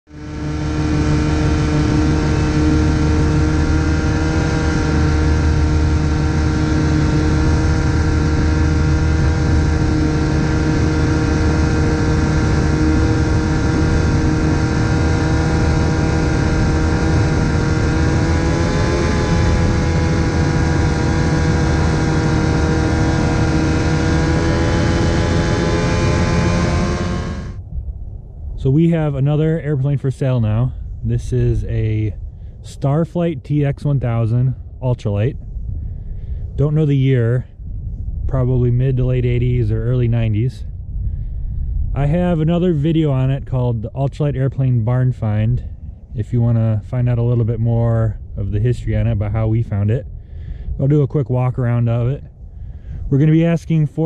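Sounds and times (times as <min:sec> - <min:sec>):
two-stroke engine running steadily: 0:00.1 - 0:27.6, 0:52.4 - 0:53.1.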